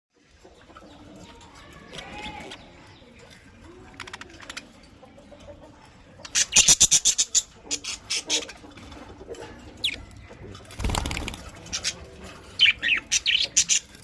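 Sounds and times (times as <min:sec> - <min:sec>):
budgerigars chattering: 0:11.6 - 0:14.0.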